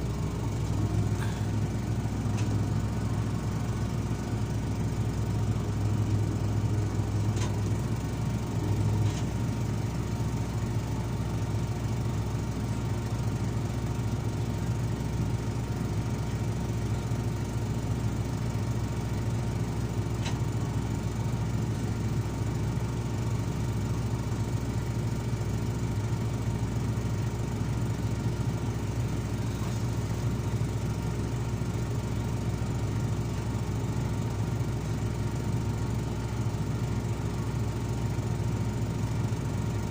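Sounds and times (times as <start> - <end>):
diesel engine humming: 0.0 - 39.9.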